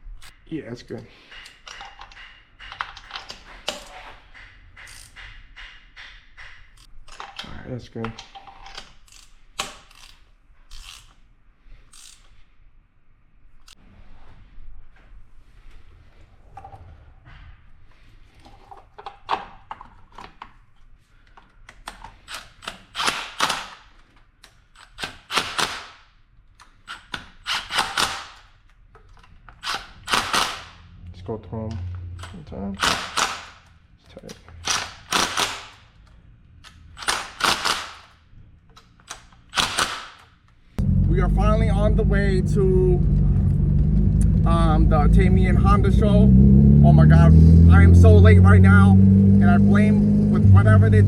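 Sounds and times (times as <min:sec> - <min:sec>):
metallic clicks of hand tools: 0:01.3 - 0:04.0
socket ratchet clicking: 0:08.7 - 0:11.2
ratchet clicking: 0:11.9 - 0:12.3.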